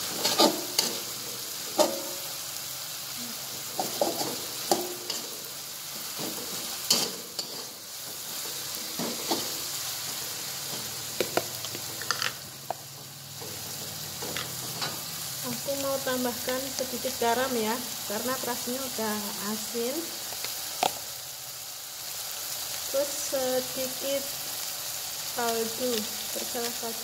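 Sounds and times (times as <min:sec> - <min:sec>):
metal spatula scraping wok: 0:00.0 - 0:02.3, 0:03.6 - 0:11.0
food sizzling in hot oil: 0:00.0 - 0:27.0.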